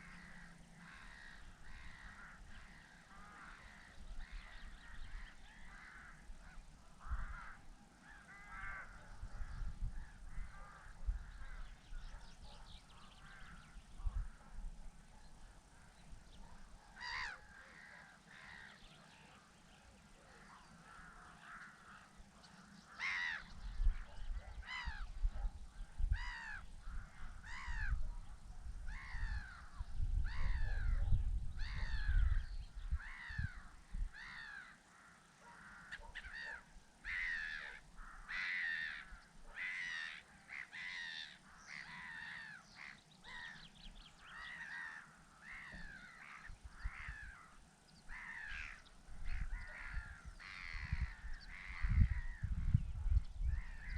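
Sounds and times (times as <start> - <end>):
wind rumble on microphone: 0.0 - 7.8, 8.4 - 17.2, 23.0 - 34.6, 45.7 - 47.5, 48.1 - 53.9
birds cawing: 0.0 - 12.1, 13.0 - 14.4, 16.9 - 19.5, 20.4 - 25.2, 26.1 - 28.0, 28.9 - 31.0, 31.6 - 52.7, 53.5 - 53.9.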